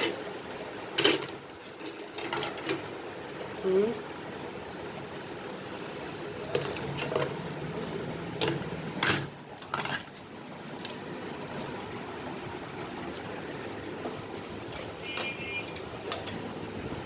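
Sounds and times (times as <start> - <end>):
steady background noise: 0.0 - 17.0
hard objects clicking and knocking: 0.9 - 3.6, 6.4 - 7.4, 8.3 - 11.7, 14.0 - 16.8.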